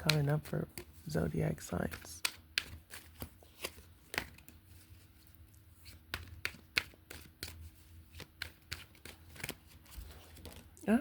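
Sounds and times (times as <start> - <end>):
cards shuffling and snapping: 0.0 - 10.8.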